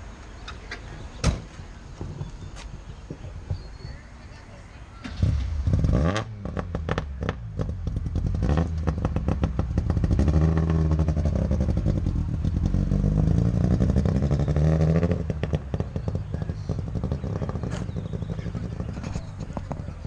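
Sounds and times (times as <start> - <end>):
popping exhaust: 4.8 - 20.0
two-stroke engine revving: 5.0 - 20.0.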